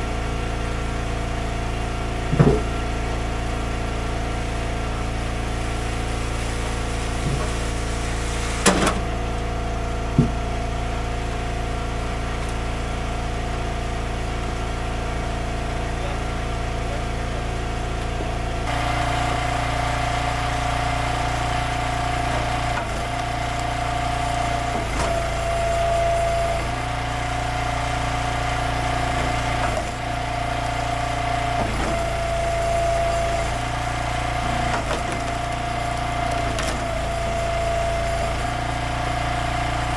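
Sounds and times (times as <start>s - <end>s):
higher engine tone: 0.0s - 39.9s
small gasoline engines running: 0.0s - 39.9s
sharp knocks: 10.1s - 10.4s.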